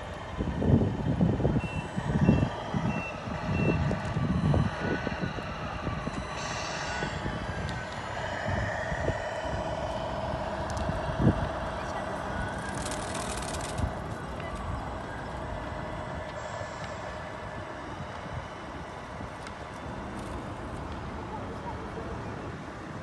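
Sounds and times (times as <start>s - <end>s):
low rumbling bursts: 0.0s - 23.0s
steady hum: 0.0s - 23.0s
high reversing beeps: 0.7s - 20.4s.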